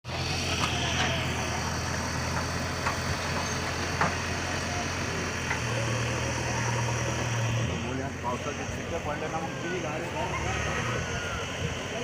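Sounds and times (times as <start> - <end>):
engine idling: 0.1 - 12.0.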